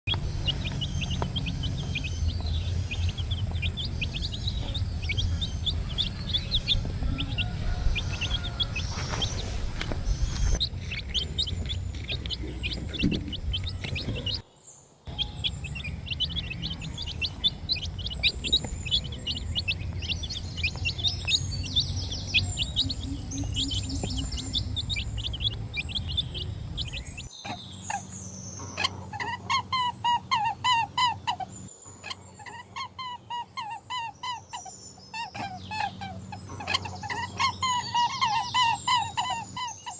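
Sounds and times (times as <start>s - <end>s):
chicks peeping: 0.1s - 14.4s, 15.1s - 39.9s
low rumble: 0.1s - 14.4s, 15.1s - 27.3s.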